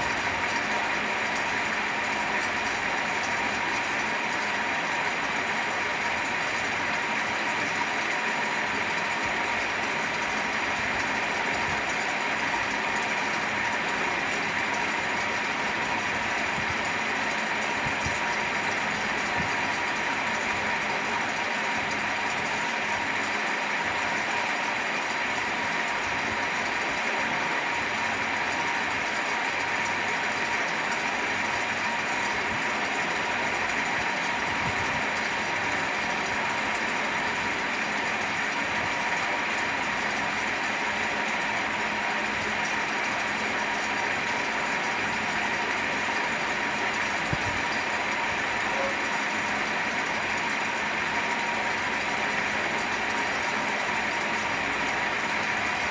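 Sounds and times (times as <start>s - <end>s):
faint motor hum: 43.1s - 55.9s.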